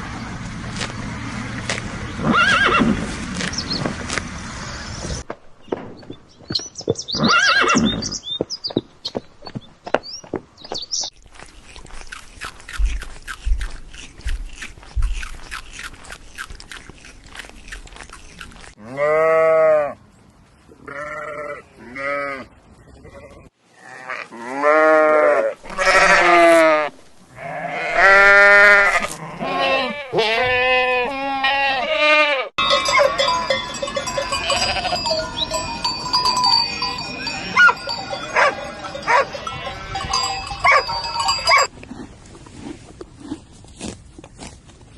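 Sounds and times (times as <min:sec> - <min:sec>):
sheep bleating: 0:18.8 - 0:20.0, 0:20.8 - 0:22.5, 0:23.1 - 0:33.3, 0:34.0 - 0:41.7
steady high tones: 0:32.6 - 0:41.7.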